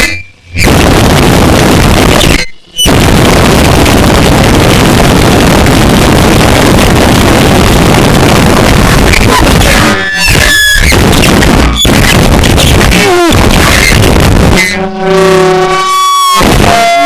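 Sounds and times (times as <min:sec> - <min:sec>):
distorted harsh noise music: 0:00.0 - 0:17.0.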